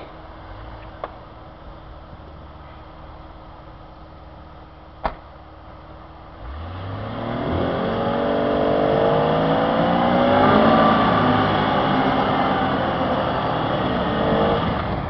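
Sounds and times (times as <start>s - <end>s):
engine revving hard: 6.4s - 15.0s.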